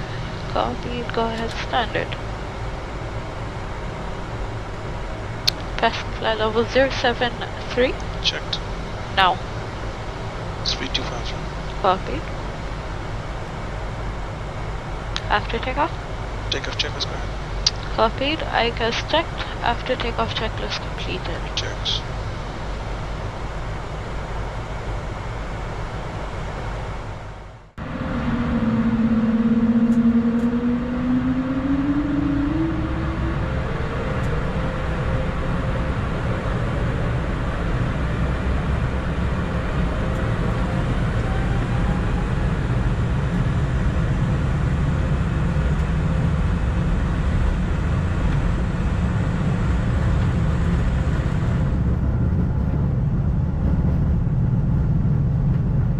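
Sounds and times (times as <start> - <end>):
jet engine and airflow noise: 0.0 - 55.9
rising tone: 27.8 - 37.4.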